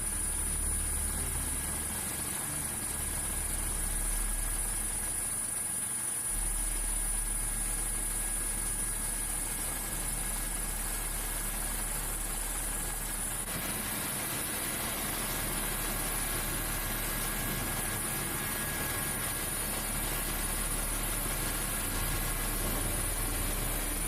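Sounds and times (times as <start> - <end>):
aircraft engines droning: 0.0 - 24.0.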